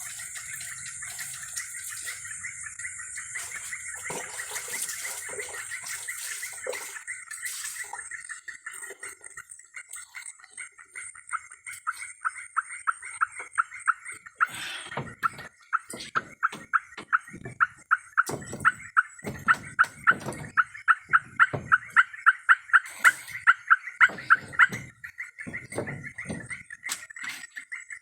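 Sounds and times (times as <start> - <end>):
insect-like drone: 0.0 - 13.8
low knocks and rustles: 14.9 - 22.1, 24.0 - 27.0.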